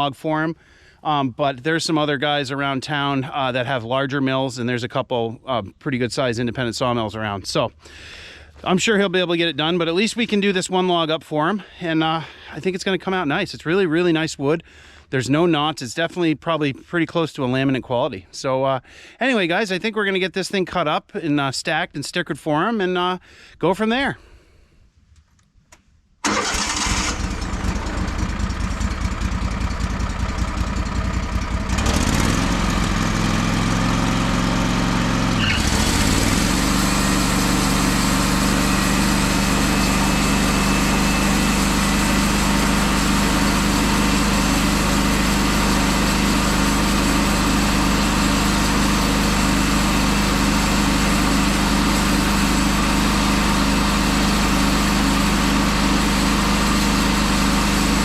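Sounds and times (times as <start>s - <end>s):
sawmill engine running: 26.2s - 58.0s.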